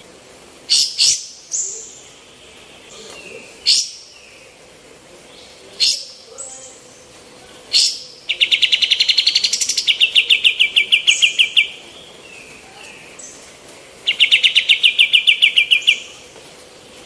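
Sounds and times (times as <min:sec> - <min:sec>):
bird singing rattling trills: 0:07.7 - 0:16.2.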